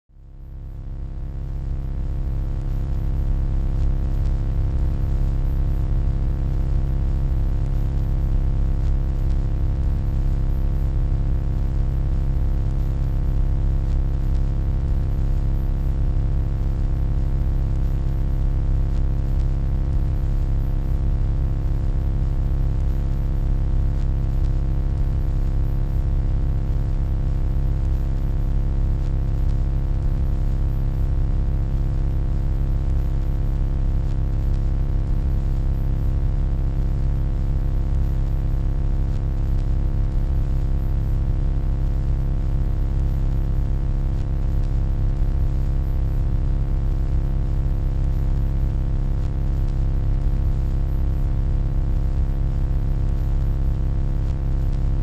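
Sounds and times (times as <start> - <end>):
deep electronic hum: 0.1 - 15.2.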